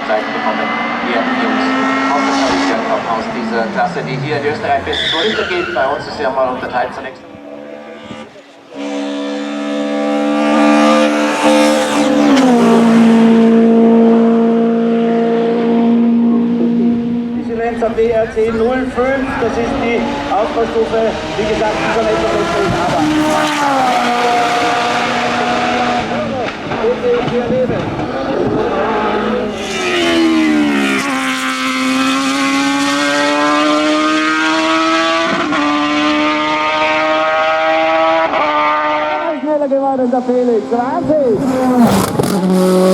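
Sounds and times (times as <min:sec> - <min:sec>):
race car engine at high revs: 0:00.0 - 0:42.9.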